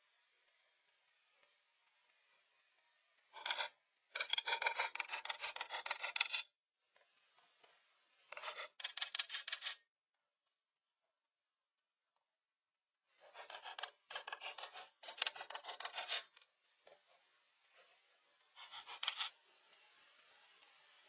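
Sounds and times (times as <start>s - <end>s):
hand tool rasping wood: 13.3s - 16.3s, 18.6s - 19.3s.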